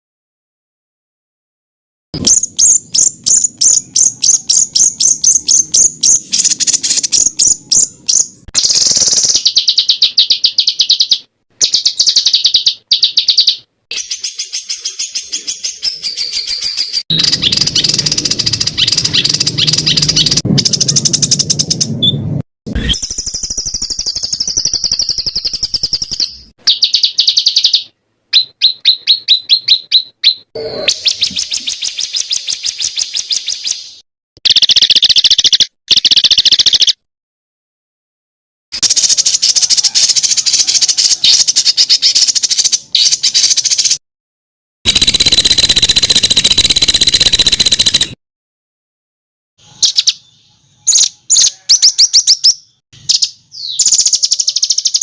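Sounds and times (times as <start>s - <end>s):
songbird trills and whistles: 2.2s - 22.2s, 22.8s - 37.0s, 38.8s - 44.0s, 49.7s - 55.0s.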